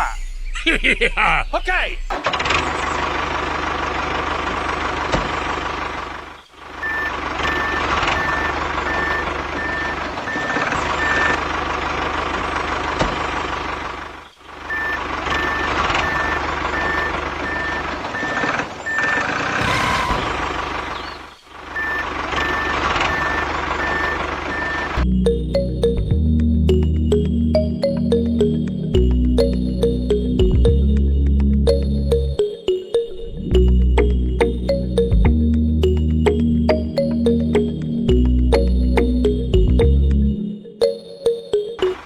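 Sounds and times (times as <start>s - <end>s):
vehicle engine running: 2.1s - 42.0s
reversing alarm beeping: 6.8s - 11.5s, 14.7s - 20.1s, 21.7s - 26.0s.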